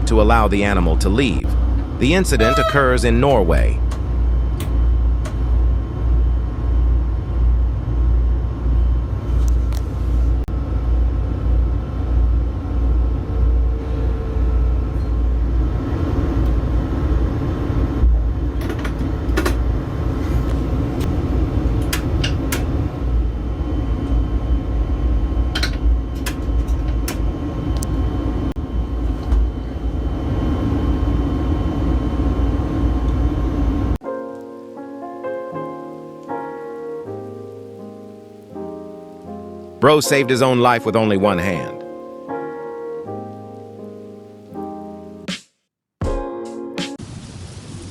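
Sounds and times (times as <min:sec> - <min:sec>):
train rumbling: 0:00.0 - 0:34.0.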